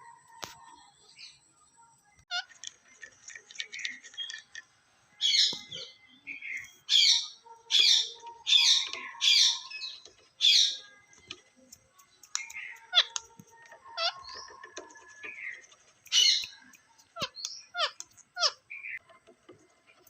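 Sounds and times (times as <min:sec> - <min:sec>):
parrot chattering and squawking: 0:02.3 - 0:04.5, 0:12.3 - 0:19.0.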